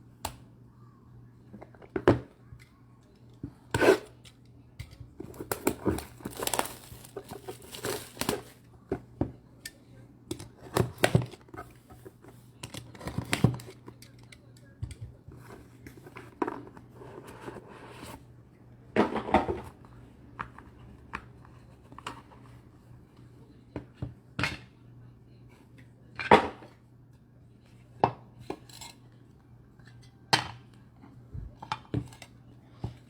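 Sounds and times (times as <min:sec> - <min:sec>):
cards rustling: 0:05.3 - 0:08.6.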